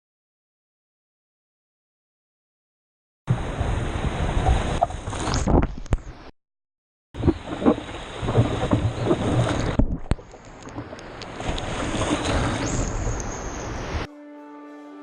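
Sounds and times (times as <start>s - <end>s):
ocean surf rushing: 3.3s - 5.4s, 7.2s - 14.1s
wind buffeting microphone: 7.2s - 14.0s
music with held tones: 14.1s - 15.0s.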